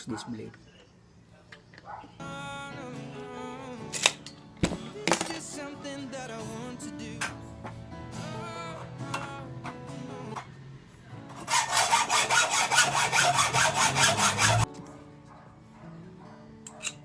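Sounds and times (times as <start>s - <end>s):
hand saw cutting metal: 11.3s - 14.7s.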